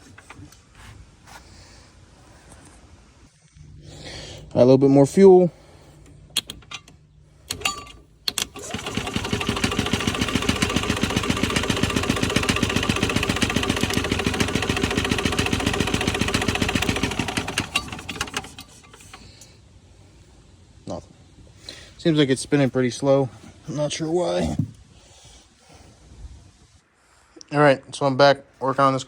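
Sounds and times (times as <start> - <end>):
engine starter cranking slowly: 5.9 - 19.5.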